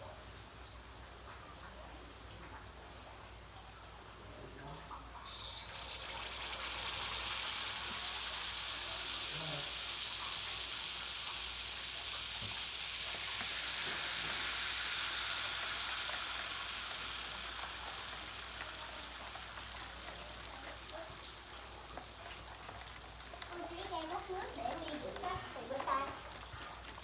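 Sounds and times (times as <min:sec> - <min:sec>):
batter sizzling in hot oil: 0:05.0 - 0:27.0.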